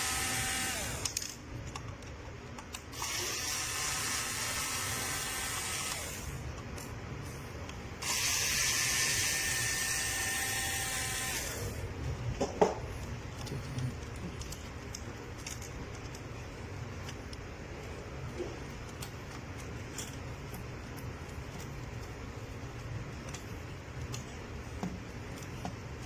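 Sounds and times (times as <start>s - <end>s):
robot vacuum hum: 0.0s - 1.1s, 3.0s - 6.4s, 8.0s - 11.8s.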